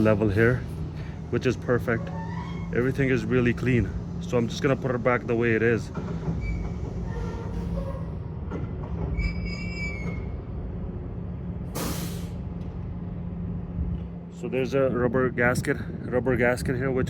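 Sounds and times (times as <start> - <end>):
high metallic squeal: 1.8 - 3.3, 9.2 - 10.4.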